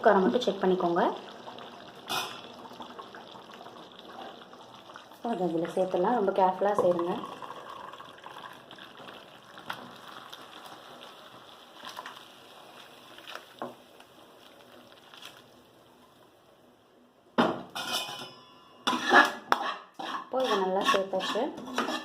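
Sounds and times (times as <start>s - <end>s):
ladle clinking against metal pots: 17.7s - 22.0s.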